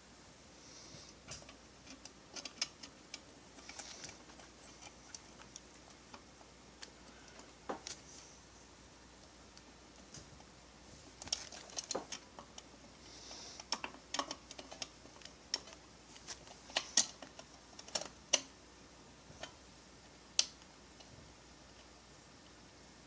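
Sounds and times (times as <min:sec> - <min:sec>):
tools and small parts clicking: 0:01.3 - 0:06.2, 0:11.2 - 0:12.7, 0:13.6 - 0:18.5.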